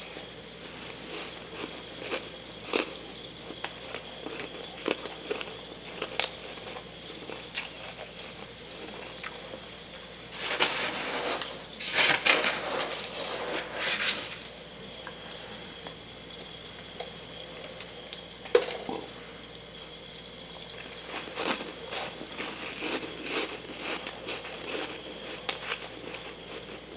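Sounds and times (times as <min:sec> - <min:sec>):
freezer frost crunching: 0:10.2 - 0:14.5, 0:20.7 - 0:26.9.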